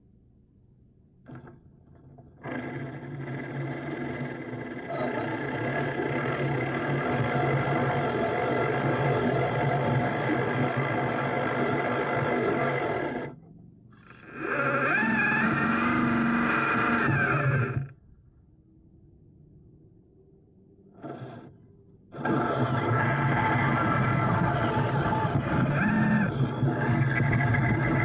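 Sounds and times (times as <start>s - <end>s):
electric motor and gears whining: 2.4s - 17.9s, 22.2s - 28.0s.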